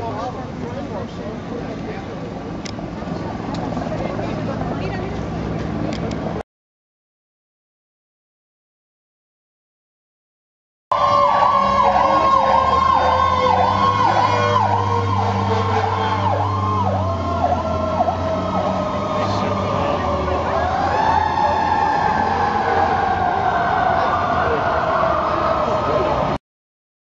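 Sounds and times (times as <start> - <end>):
heavy engine hum: 0.0 - 6.4, 10.9 - 26.4
siren steady tone: 10.9 - 26.4
siren yelping: 10.9 - 26.4.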